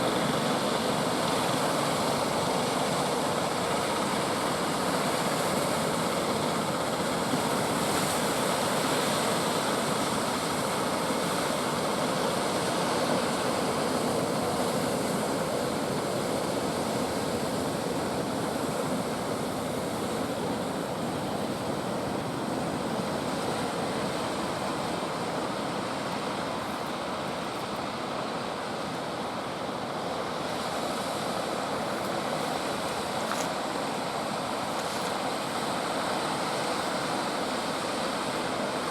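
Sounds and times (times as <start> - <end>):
ocean surf breaking: 10.9 - 38.9.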